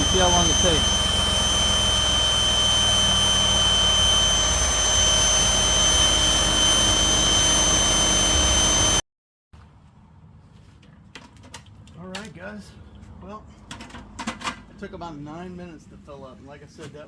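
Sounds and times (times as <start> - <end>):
electric air pump whining: 0.0 - 9.0.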